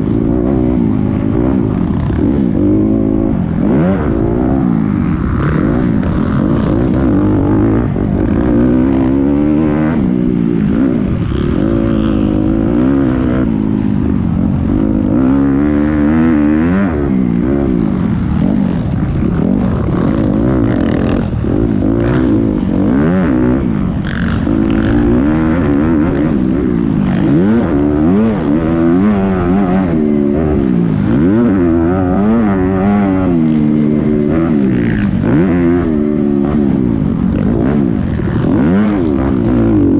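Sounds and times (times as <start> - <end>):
motocross bikes revving: 0.0 - 39.9.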